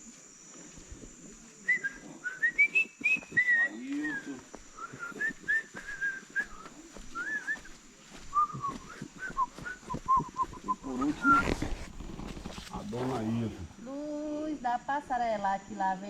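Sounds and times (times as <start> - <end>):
person whistling a tune: 1.7 - 6.6, 8.3 - 11.4.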